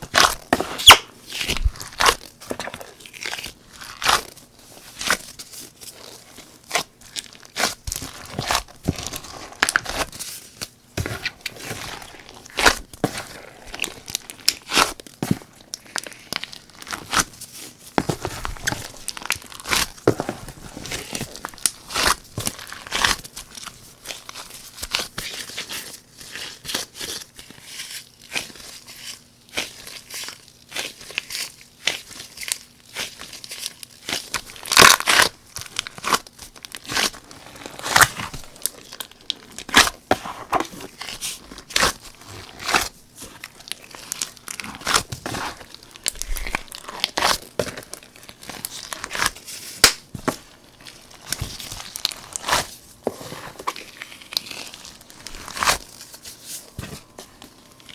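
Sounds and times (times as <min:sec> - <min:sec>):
slime crackling and popping: 0:00.0 - 0:04.4, 0:06.0 - 0:17.4, 0:28.2 - 0:52.8.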